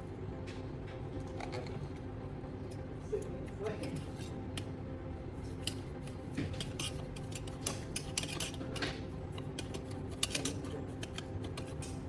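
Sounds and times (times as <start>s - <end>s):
metal scoop clinking and scraping: 6.6s - 8.6s, 9.4s - 12.0s.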